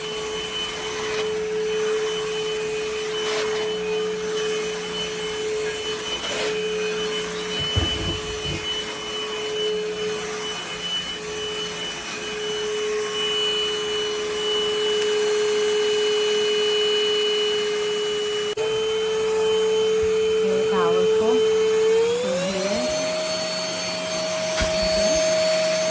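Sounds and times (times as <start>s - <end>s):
vacuum motor whine: 0.0s - 25.9s
low knocks: 7.6s - 8.8s.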